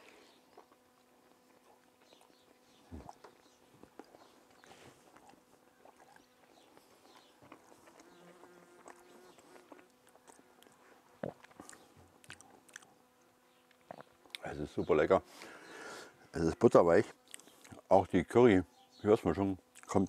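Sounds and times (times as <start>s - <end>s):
faint chewing: 0.0s - 16.4s, 17.0s - 17.9s, 19.6s - 20.0s
flying insect buzzing: 7.8s - 9.9s.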